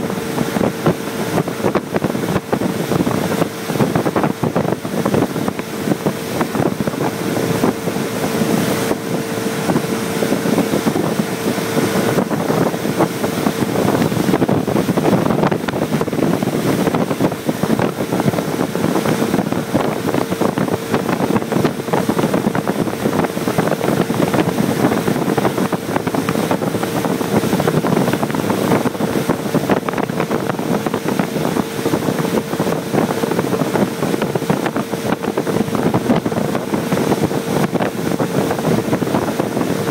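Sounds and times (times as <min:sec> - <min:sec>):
motorboat engine running: 0:00.0 - 0:39.9
wind buffeting microphone: 0:00.0 - 0:39.9.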